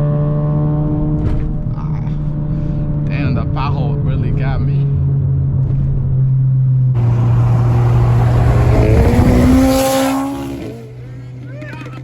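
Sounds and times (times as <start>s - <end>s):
car engine accelerating: 4.8s - 11.5s
low engine drone: 7.0s - 11.4s.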